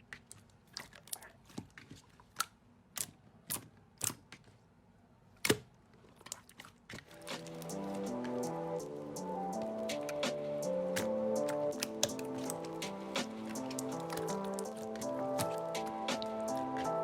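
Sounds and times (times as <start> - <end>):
slime clicking and popping: 9.6 - 17.0.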